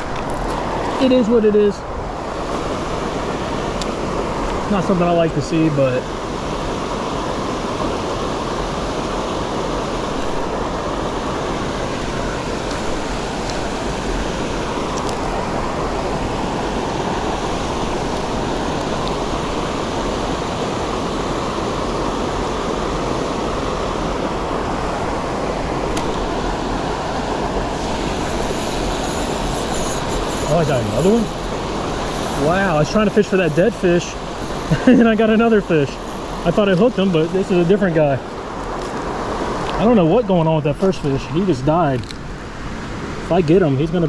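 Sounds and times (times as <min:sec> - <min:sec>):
creek water rushing: 0:00.0 - 0:44.0.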